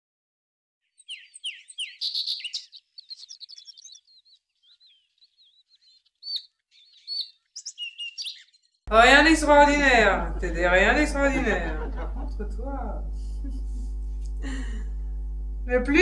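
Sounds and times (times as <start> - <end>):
songbirds chirping: 0.8 - 13.6.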